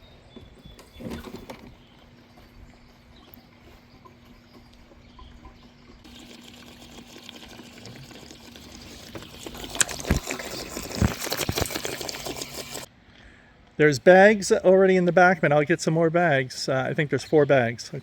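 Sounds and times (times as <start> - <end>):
gasoline pouring into fuel tank: 6.1 - 12.9.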